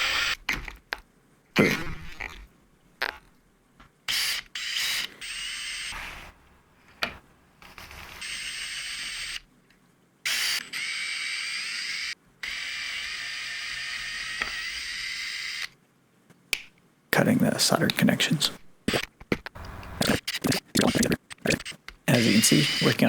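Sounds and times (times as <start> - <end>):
small electric tool motor whining: 0.0 - 0.4, 4.1 - 6.3, 7.6 - 9.4, 10.3 - 15.7, 19.6 - 23.0.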